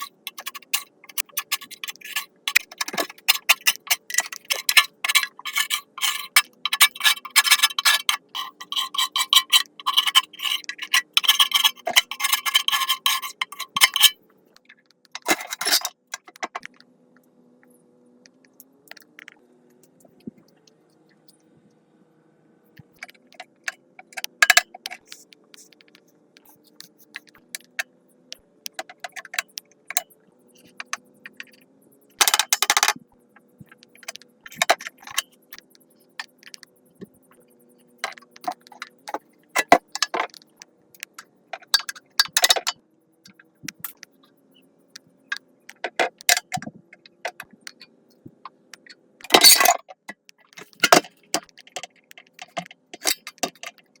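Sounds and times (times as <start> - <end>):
metal clattering: 0.0 - 14.2, 15.2 - 15.9, 49.3 - 49.8
metal tools clinking: 0.0 - 14.2, 15.2 - 15.9, 24.4 - 24.6, 32.2 - 32.9, 49.3 - 49.8, 50.6 - 51.1.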